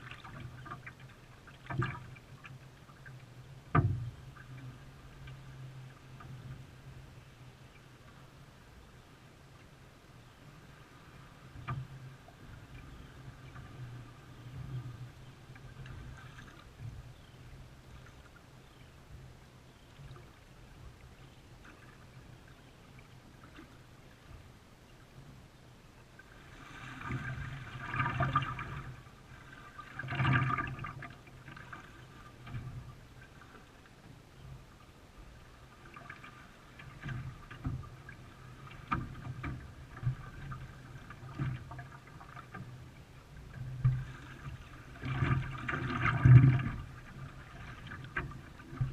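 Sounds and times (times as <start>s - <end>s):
water splashing around canoe: 0.0s - 7.3s, 26.1s - 48.9s
paddle strokes: 0.0s - 9.8s, 10.4s - 24.6s, 26.0s - 48.9s.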